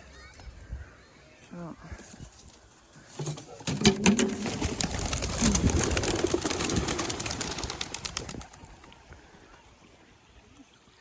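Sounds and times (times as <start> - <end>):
pigeon wings flapping: 3.7 - 9.0.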